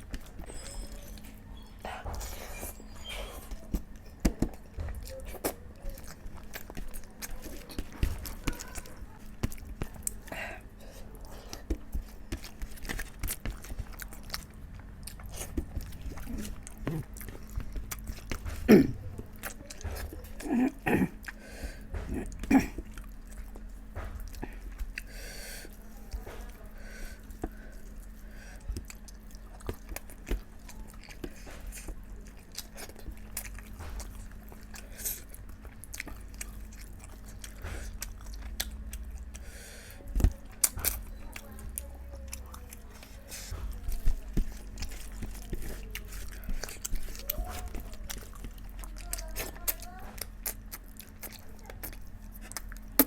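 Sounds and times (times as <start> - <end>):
person chewing food: 0.0 - 53.0.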